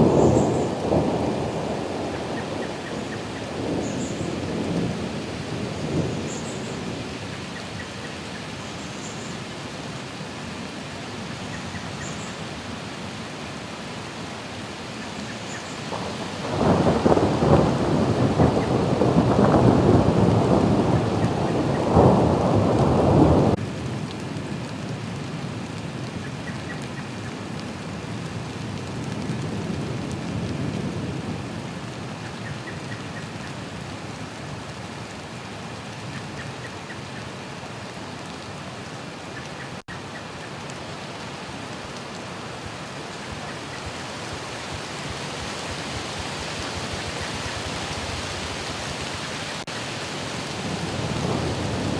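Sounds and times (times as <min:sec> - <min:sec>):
thunder rumbling: 0:00.0 - 0:07.8, 0:15.9 - 0:34.9, 0:40.6 - 0:51.9
steady rain: 0:00.0 - 0:51.9.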